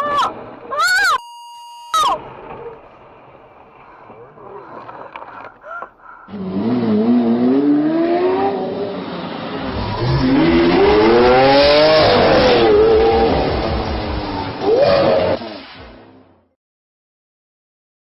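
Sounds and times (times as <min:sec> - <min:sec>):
car engine revving: 0:06.3 - 0:15.7.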